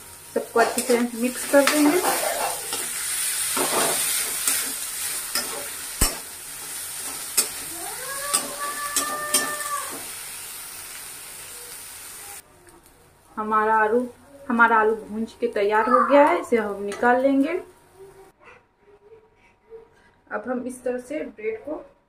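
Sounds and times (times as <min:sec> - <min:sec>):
food sizzling in oil: 0:00.0 - 0:12.5.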